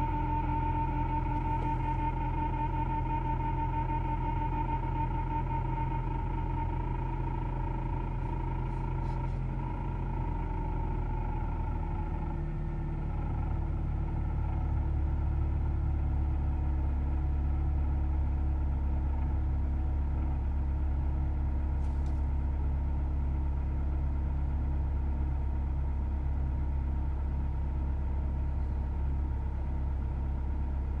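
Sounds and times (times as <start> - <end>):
power-steering pump whine: 0.0 - 10.1
car engine idling: 0.8 - 14.6.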